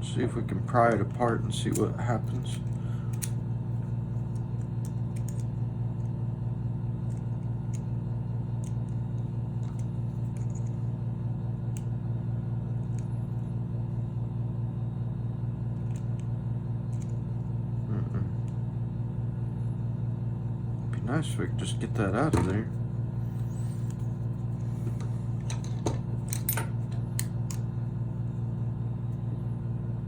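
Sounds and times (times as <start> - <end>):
low machinery hum: 0.0 - 30.0.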